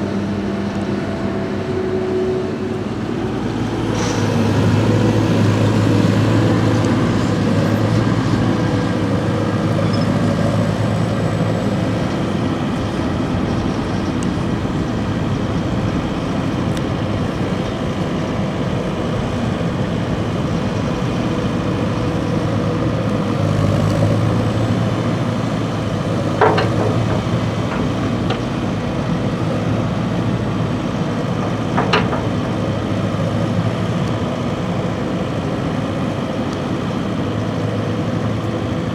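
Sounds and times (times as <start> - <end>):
diesel machinery humming: 0.0 - 38.9
sharp metal clanks: 26.2 - 28.6.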